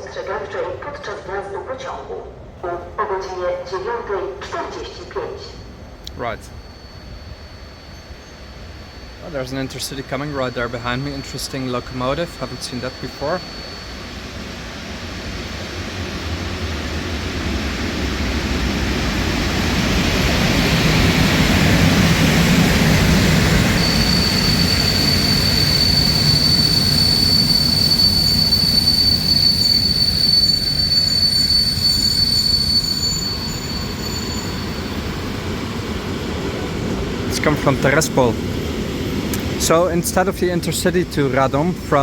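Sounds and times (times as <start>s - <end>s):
train running past: 0.0s - 42.0s
high-pitched wheel squeal: 4.8s - 18.6s, 20.6s - 38.4s.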